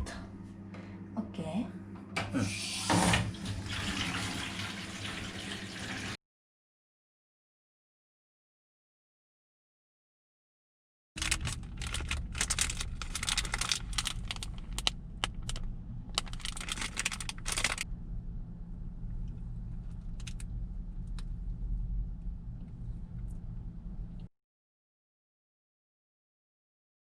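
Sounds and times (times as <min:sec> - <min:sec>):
rustling and clicking of handling: 0:11.2 - 0:17.8
low rumble: 0:11.2 - 0:24.3.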